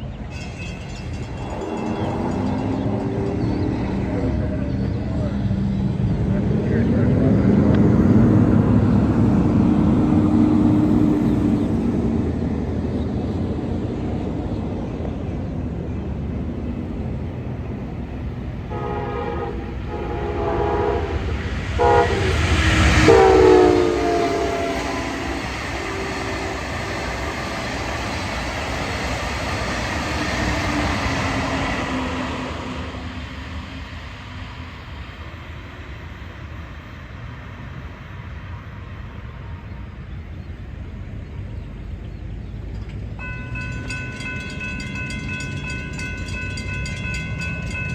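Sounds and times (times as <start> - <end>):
rumble of passing train: 0.0 - 47.9
train horn blasts: 18.7 - 27.0.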